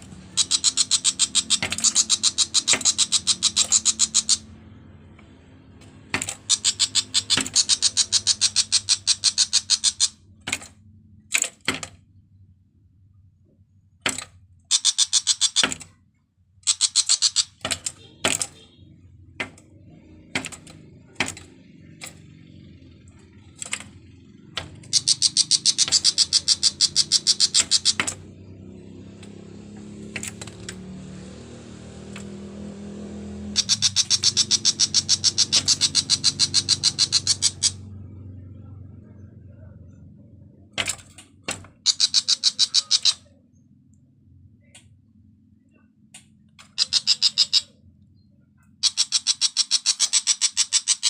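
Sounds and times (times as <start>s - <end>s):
bird rattling chatter: 0.3s - 4.5s, 6.2s - 10.6s, 14.7s - 15.8s, 16.6s - 18.6s, 24.7s - 28.2s, 33.5s - 37.8s, 41.8s - 43.2s, 46.7s - 47.7s, 48.8s - 51.0s.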